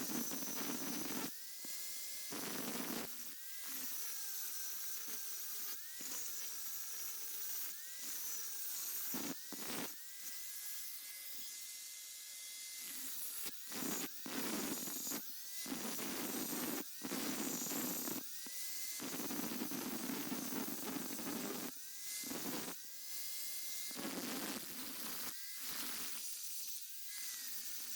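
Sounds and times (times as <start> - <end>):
grinder grinding steel: 3.6 - 27.9
grinder whine spinning up: 9.2 - 27.9.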